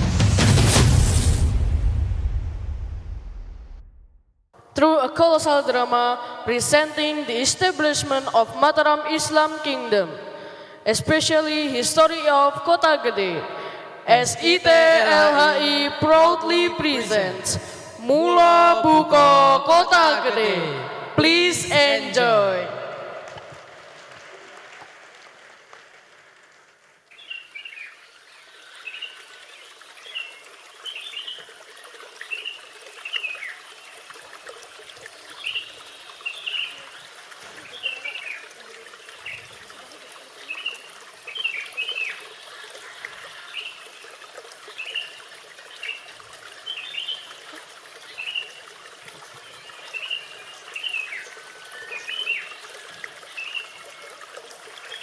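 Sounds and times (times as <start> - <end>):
trickling water: 4.6 - 55.0
small birds chirping: 27.1 - 31.5.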